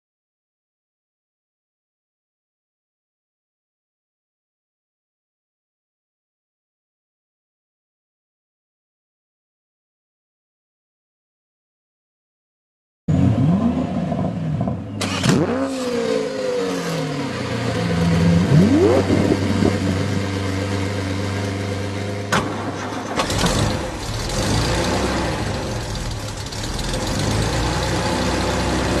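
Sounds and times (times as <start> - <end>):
car engine revving: 13.1 - 29.0.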